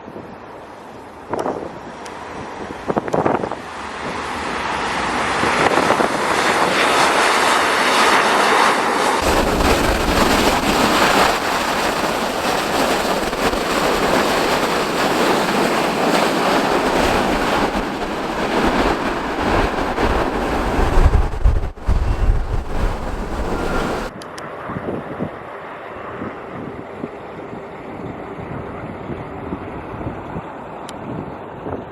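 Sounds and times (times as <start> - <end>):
jet engines roaring: 0.4 - 29.9
wind buffeting microphone: 1.3 - 8.2, 9.2 - 25.5.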